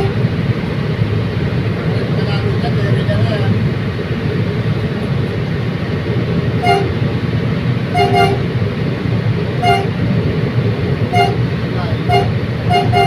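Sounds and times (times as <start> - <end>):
train rumbling: 0.0 - 13.0
short pitched toots: 6.6 - 7.0, 8.0 - 8.5, 9.6 - 10.0, 11.1 - 11.4, 12.0 - 13.0.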